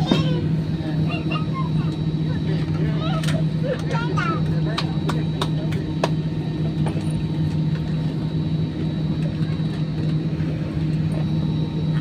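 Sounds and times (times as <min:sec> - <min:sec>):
aircraft cabin hum: 0:00.0 - 0:12.0.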